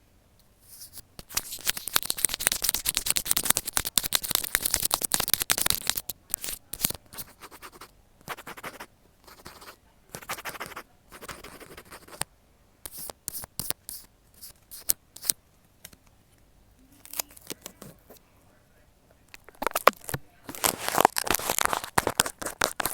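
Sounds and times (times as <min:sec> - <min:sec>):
needle scratching material: 0:00.6 - 0:12.2, 0:19.4 - 0:22.9.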